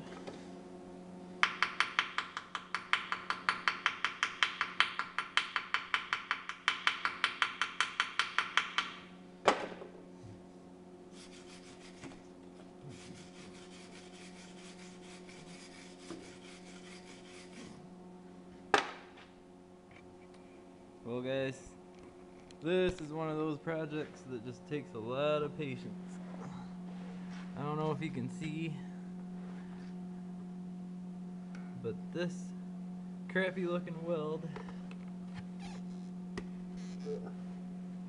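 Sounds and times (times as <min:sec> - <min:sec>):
rhythmic metal-working strokes: 0:12.9 - 0:17.7.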